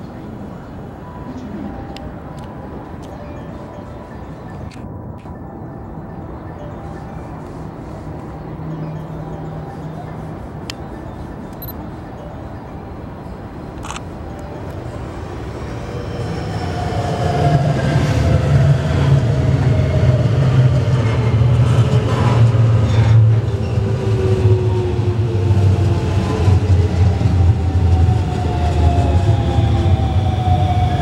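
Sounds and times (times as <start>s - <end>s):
train wheels rumbling on rails: 14.6s - 31.0s.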